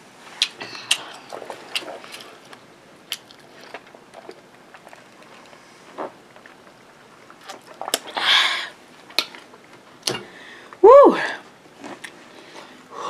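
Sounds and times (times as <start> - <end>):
wet mouth clicks and smacks: 0.4 - 5.1, 7.4 - 8.1
person chewing food: 0.4 - 8.2
person humming: 10.8 - 11.4.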